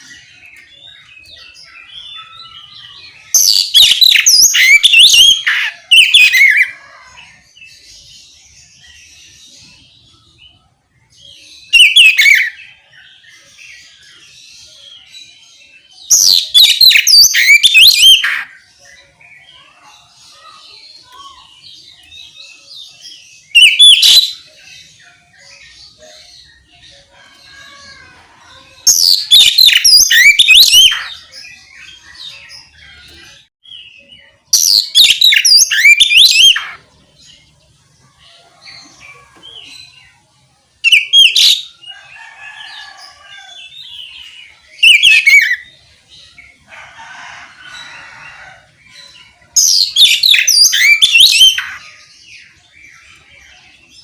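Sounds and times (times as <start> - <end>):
bird singing whistled phrases: 16.2 - 18.3, 23.5 - 24.5, 28.9 - 31.1, 34.6 - 36.8.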